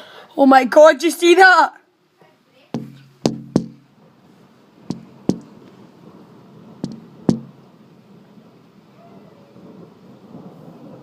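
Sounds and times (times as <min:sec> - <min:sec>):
heavy rain hiss: 0:02.0 - 0:11.0
sharp knocks in pairs: 0:02.8 - 0:03.8, 0:04.9 - 0:05.5, 0:06.8 - 0:07.6.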